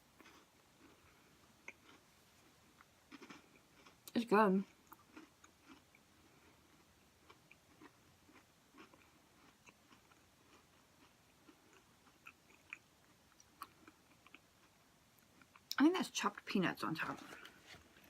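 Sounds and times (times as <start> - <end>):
faint chewing with small crunches: 0.0 - 18.0.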